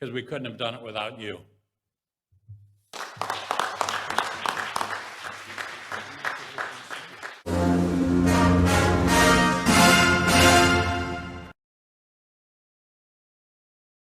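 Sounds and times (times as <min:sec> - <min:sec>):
audience applauding: 0:02.9 - 0:07.5
loud music with held notes: 0:07.5 - 0:11.4.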